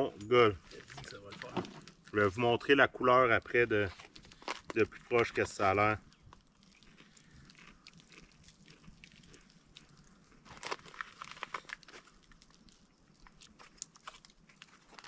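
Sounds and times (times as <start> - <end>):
spice rub crackling clicks: 9.4 - 15.0.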